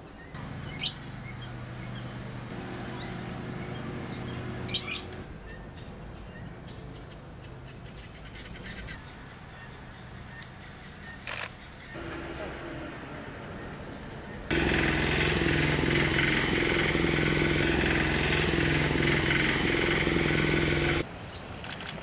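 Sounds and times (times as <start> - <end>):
high bird chirps: 0.3 - 2.1, 2.8 - 5.2
steady low hum: 12.0 - 21.0.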